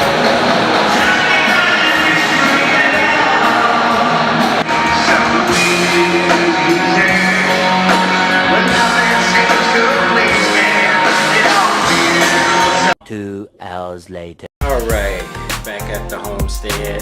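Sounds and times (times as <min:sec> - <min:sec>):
electric guitar: 0:00.0 - 0:12.9
loud rock music: 0:00.0 - 0:13.0, 0:14.6 - 0:17.0
person singing: 0:00.0 - 0:13.0, 0:14.6 - 0:17.0.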